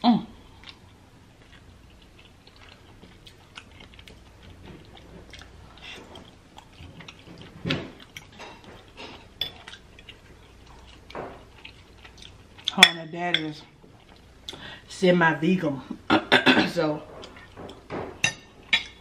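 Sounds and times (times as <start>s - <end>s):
wet chewing of noodles: 0.4s - 12.8s, 13.7s - 14.9s.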